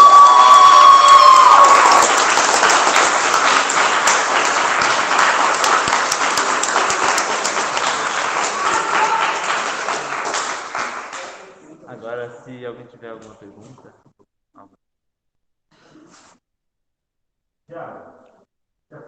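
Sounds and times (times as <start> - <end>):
audience applauding: 0.0 - 11.6
crowd cheering: 0.0 - 11.6.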